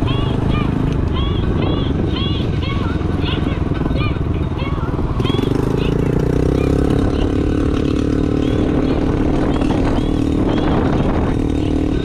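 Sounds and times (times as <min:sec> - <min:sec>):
motorcycle engine running: 0:00.0 - 0:12.0
wind noise on microphone: 0:00.0 - 0:12.0.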